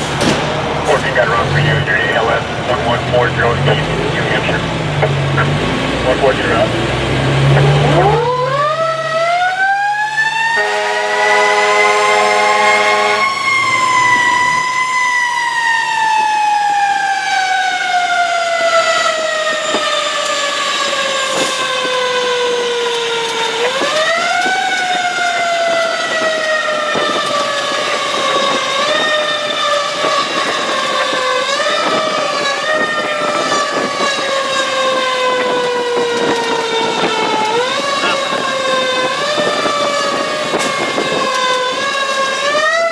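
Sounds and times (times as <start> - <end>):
air horn blast: 10.5 - 14.6.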